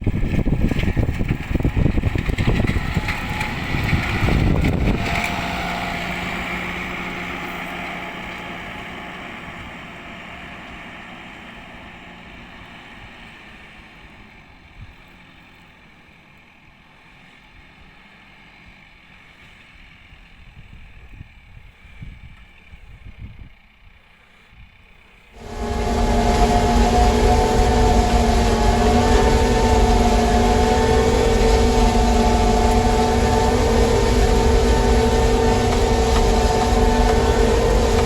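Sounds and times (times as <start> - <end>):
tractor engine rumbling: 0.0 - 12.4, 25.4 - 38.0.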